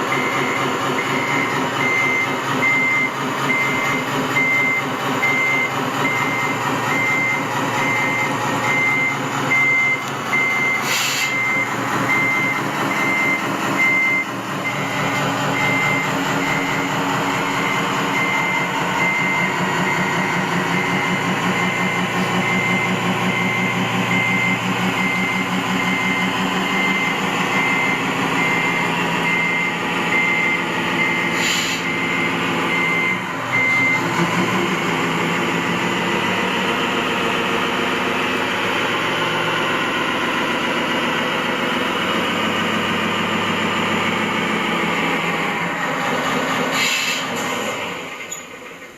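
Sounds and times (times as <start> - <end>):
reversing alarm beeping: 0.0 - 37.7
truck engine running: 0.0 - 48.9.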